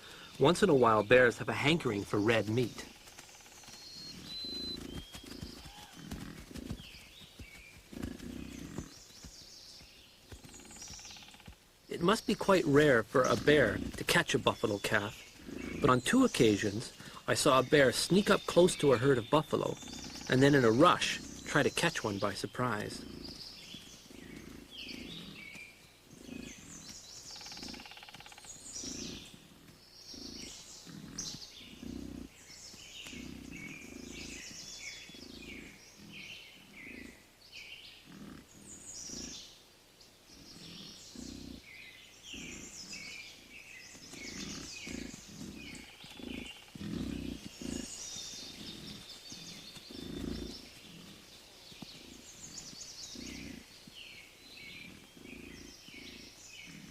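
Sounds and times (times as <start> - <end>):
birds chirping: 0.0 - 56.9
bison grunting: 7.9 - 9.0, 11.9 - 27.9, 28.6 - 37.3, 38.0 - 39.4, 40.3 - 56.9.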